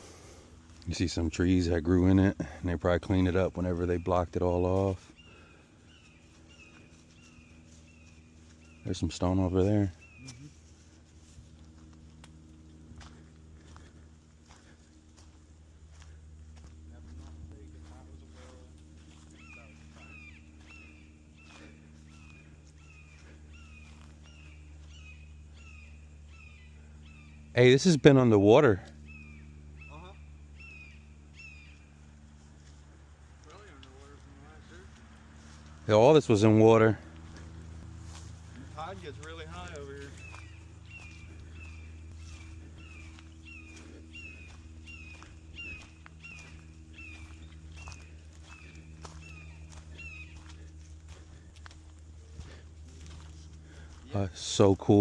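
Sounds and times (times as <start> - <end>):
steady low hum: 0.0 - 55.0
bird chirping: 1.2 - 10.7, 15.9 - 27.7, 28.4 - 32.5, 36.4 - 55.0.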